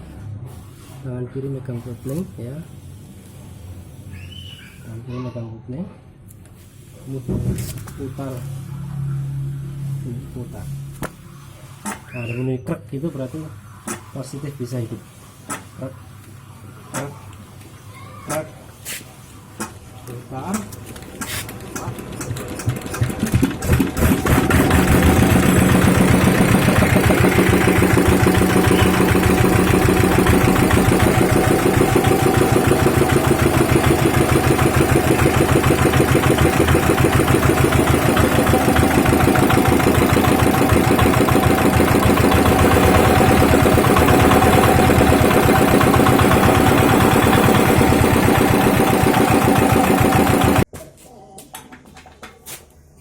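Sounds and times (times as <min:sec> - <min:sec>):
diesel engine running: 0:21.5 - 0:50.7.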